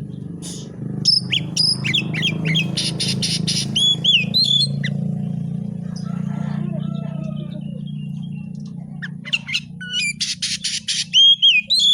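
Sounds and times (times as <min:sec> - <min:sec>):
bird singing whistled song: 0:01.0 - 0:05.0, 0:09.0 - 0:11.9.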